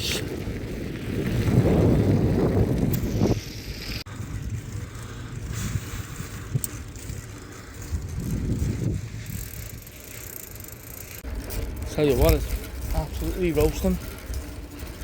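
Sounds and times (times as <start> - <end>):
wind buffeting microphone: 0.0 - 10.2
bicycle clicks and rattles: 0.0 - 15.0.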